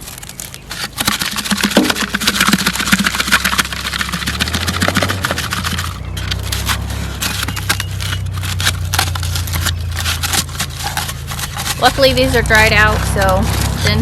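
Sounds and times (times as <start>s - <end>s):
dried gourd crackling scraped out: 0.0s - 14.0s.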